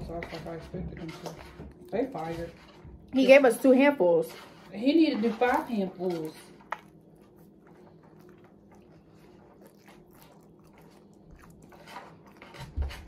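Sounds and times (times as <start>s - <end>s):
person chewing food: 6.4s - 13.0s.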